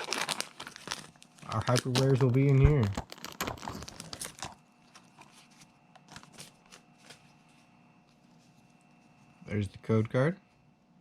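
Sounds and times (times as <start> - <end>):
foil pack crinkling: 0.0 - 7.2.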